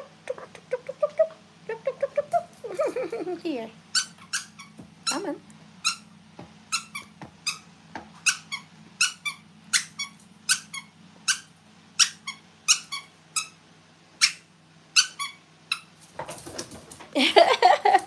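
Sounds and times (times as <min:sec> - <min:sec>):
faint low hum: 0:00.0 - 0:18.0
rubber squeaky toy squeaking: 0:04.0 - 0:06.1, 0:06.7 - 0:07.6, 0:08.2 - 0:13.6, 0:15.0 - 0:15.9.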